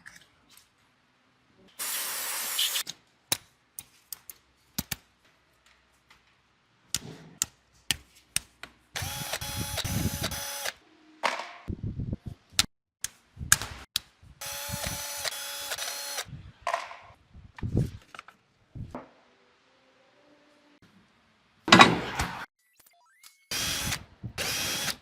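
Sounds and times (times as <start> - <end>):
power tool whirring: 9.0 - 10.8, 14.4 - 16.3, 23.5 - 25.0.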